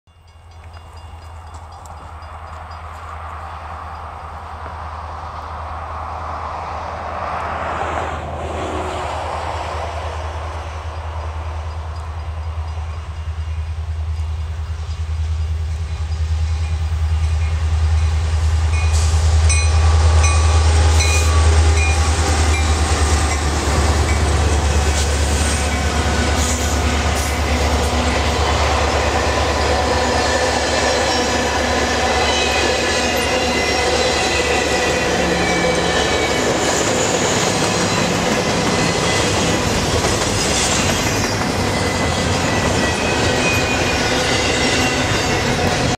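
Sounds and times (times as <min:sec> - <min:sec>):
locomotive engine drone: 0:00.3 - 0:45.9
train wheels clicking over rail joints: 0:18.7 - 0:45.9
high wheel squeal: 0:18.9 - 0:45.9.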